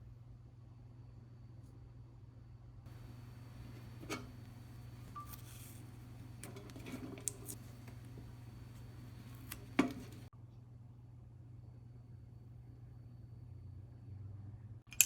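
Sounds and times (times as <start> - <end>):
steady low hum: 2.4 - 10.3.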